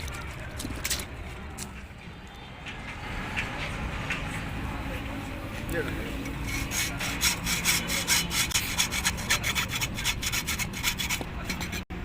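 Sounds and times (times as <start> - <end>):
hand tool scraping strokes: 6.4 - 11.9.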